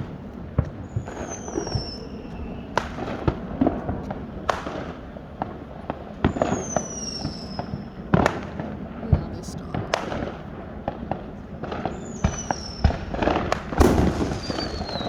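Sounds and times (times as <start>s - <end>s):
fireworks bangs: 0.0s - 15.0s
descending firework whistle: 0.8s - 3.2s, 6.3s - 8.0s, 11.8s - 15.0s.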